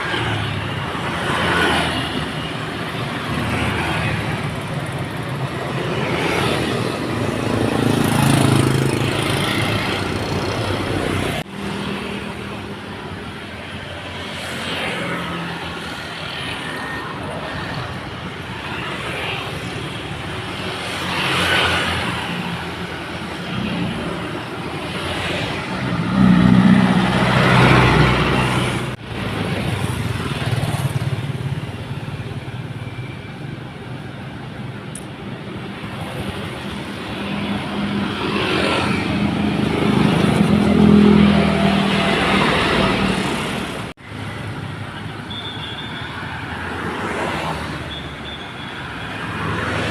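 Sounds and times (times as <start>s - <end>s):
dump truck diesel engines: 0.0s - 49.9s.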